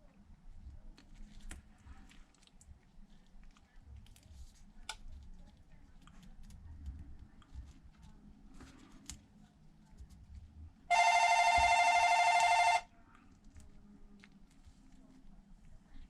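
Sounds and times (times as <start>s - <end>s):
low steady hum: 10.9s - 16.0s.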